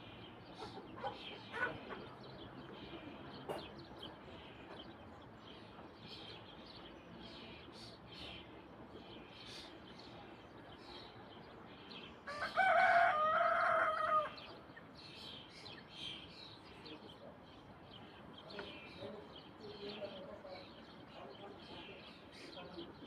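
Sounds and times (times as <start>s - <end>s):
small birds chirping: 0.0s - 23.0s
rooster crowing: 12.3s - 14.4s.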